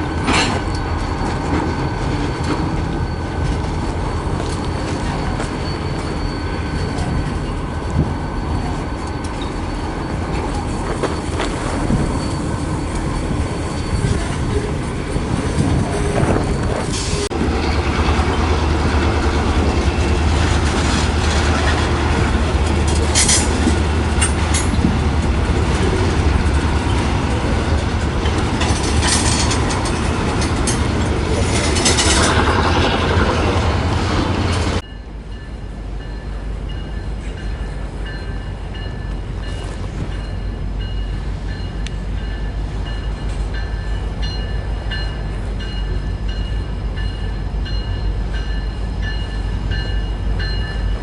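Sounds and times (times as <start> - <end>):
train rumbling on track: 0.0 - 51.0
metallic squeals and clanks: 0.2 - 18.5.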